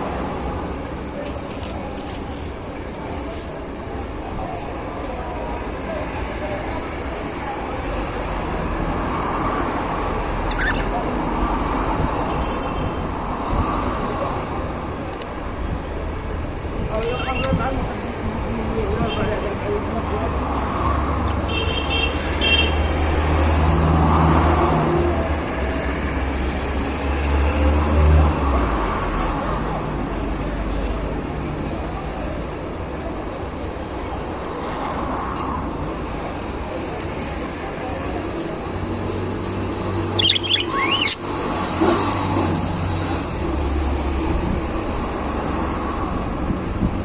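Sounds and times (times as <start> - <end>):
road traffic rumble: 0.0 - 47.0
short high chirp: 40.2 - 41.2.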